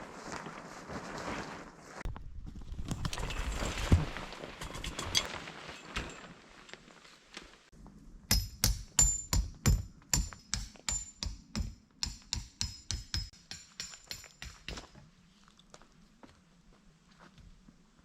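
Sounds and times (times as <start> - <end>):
rustle: 0.0 - 7.9.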